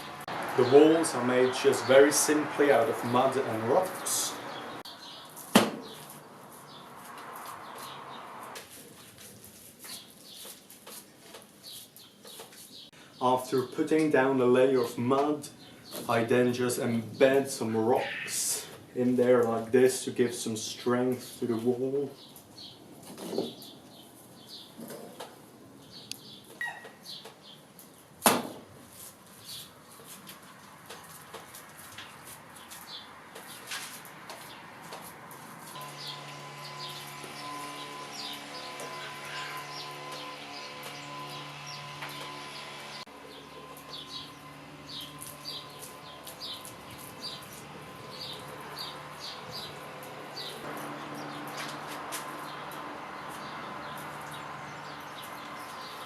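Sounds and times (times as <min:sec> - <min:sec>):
bird chirping: 0:00.0 - 0:08.4, 0:11.6 - 0:18.8, 0:22.1 - 0:24.8, 0:25.8 - 0:28.1, 0:35.7 - 0:56.0.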